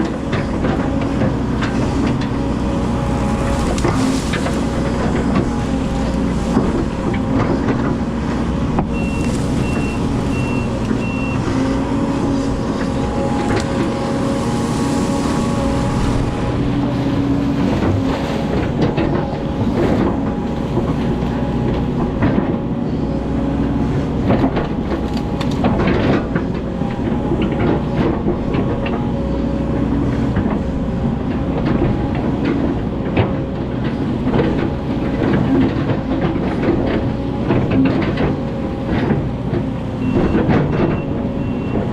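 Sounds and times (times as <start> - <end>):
machine knocks and clatters: 0.0 - 14.2, 16.4 - 22.7, 30.3 - 41.9
excavator engine and hydraulics: 0.0 - 41.9
short beeps: 8.9 - 11.4.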